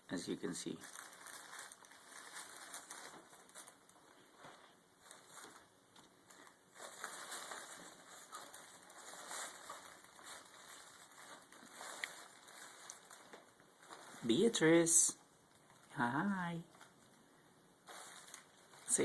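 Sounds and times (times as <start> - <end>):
cat rustling and scratching: 0.8 - 14.7, 17.8 - 19.0.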